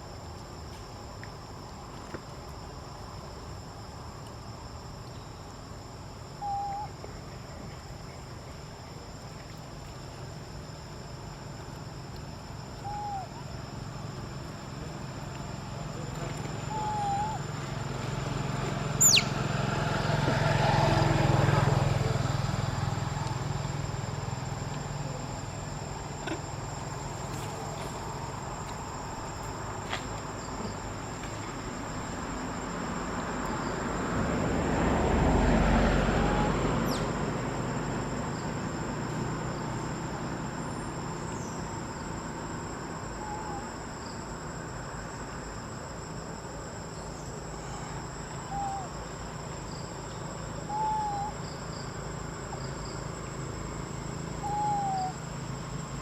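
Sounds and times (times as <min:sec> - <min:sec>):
high-pitched insect drone: 0:10.2 - 0:29.5
motor vehicle passing: 0:17.7 - 0:25.0, 0:34.0 - 0:39.0
short chirps: 0:19.0 - 0:19.3.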